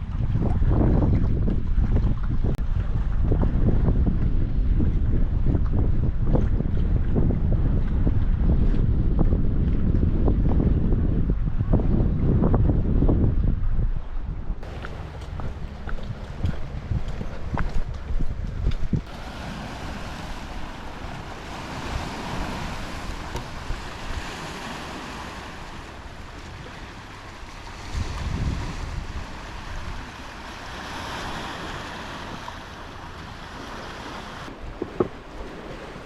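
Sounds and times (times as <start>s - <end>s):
wind buffeting microphone: 0.0s - 36.0s
sea waves washing: 14.6s - 36.0s.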